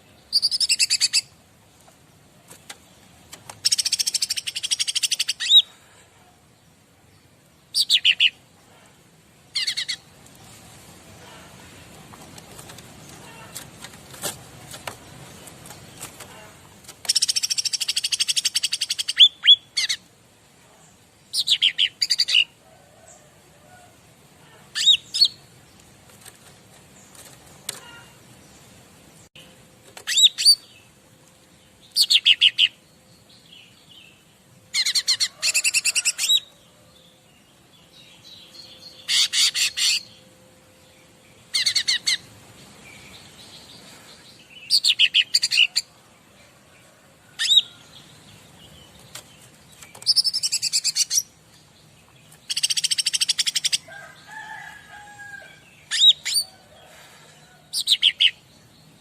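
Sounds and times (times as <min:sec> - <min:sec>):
songbird chattering: 0:52.3 - 0:53.9.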